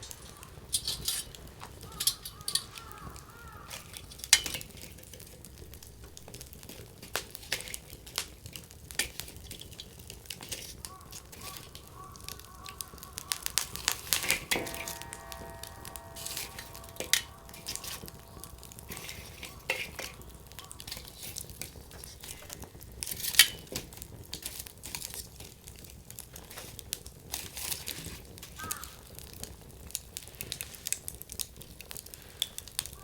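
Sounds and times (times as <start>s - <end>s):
campfire crackling and popping: 0.0s - 33.0s
faint steady whistle: 11.2s - 22.6s.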